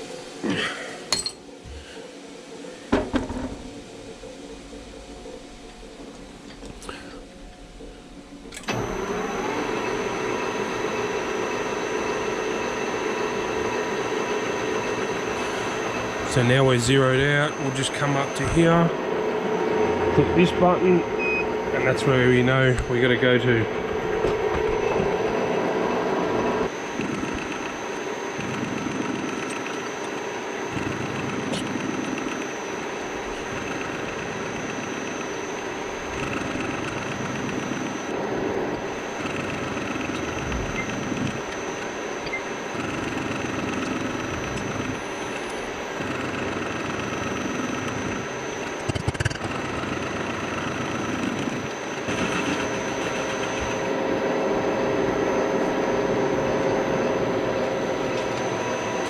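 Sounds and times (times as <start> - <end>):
metalworking machine running: 1.1 - 59.0
machine knock: 2.9 - 3.7
faint high whine: 3.6 - 59.0.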